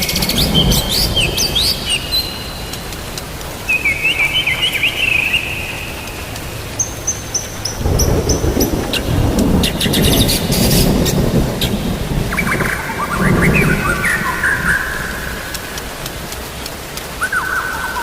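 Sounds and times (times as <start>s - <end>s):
low thunder rumble: 0.0s - 3.0s, 7.5s - 16.6s
songbirds chirping: 0.0s - 18.0s
steady rain: 0.0s - 18.0s.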